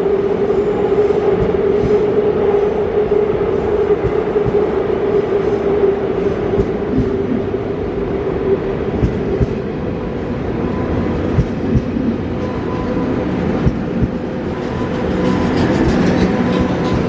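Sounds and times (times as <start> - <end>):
electric train traction hum: 0.0 - 17.0
wheel clacks over rail joints: 11.3 - 17.0.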